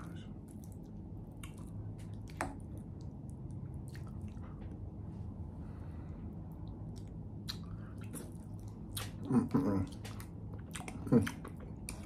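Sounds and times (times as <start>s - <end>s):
person chewing soft food: 0.0s - 5.0s, 6.2s - 12.0s
low hum: 0.0s - 12.0s
mouth smacks and clicks: 6.9s - 12.0s.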